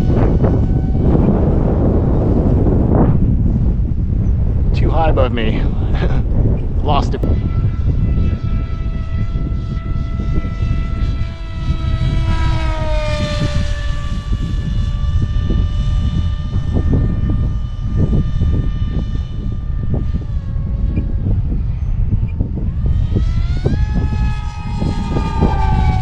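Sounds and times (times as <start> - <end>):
electric motor propeller whine: 0.0 - 26.0
wind rumble on microphone: 0.0 - 26.0.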